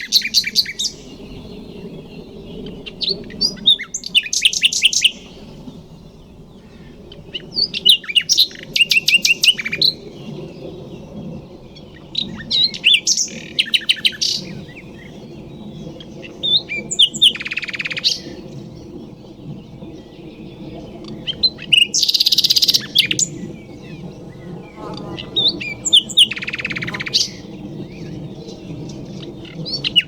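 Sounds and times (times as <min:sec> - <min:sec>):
nightingale singing: 0:22.2 - 0:28.0.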